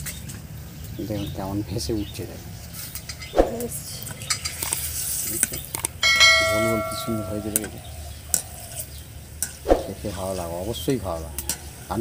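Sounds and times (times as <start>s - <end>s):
ringing metallic strike: 6.0s - 7.9s.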